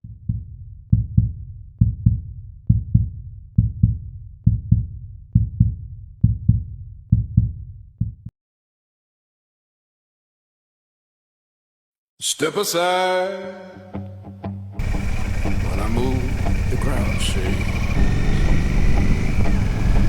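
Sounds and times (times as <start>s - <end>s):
heartbeat thumps: 0.0s - 8.3s.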